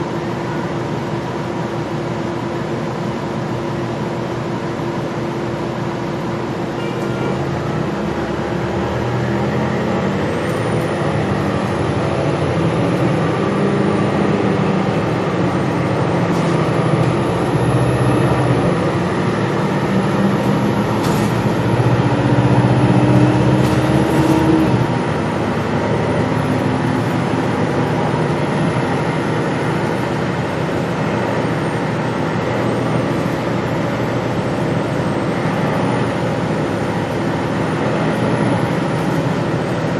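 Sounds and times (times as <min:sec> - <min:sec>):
bus engine with high whine: 0:00.0 - 0:39.9.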